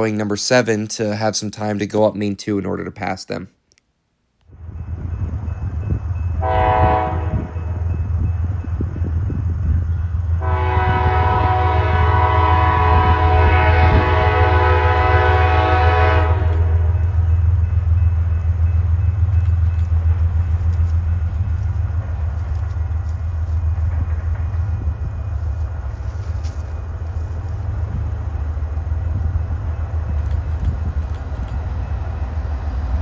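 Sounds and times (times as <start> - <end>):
locomotive engine rumble: 4.5 - 33.0
locomotive air horn blast: 6.4 - 7.7, 10.4 - 17.0.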